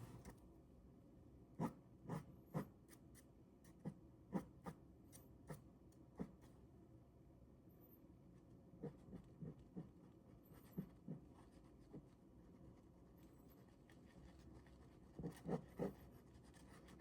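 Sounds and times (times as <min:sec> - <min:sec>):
pen drawing on paper: 0:13.6 - 0:17.0.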